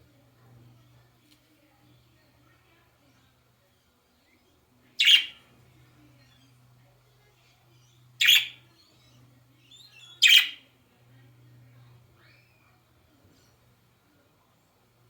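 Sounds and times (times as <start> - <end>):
bird squawking: 5.0 - 5.4, 8.2 - 8.6, 10.0 - 10.6.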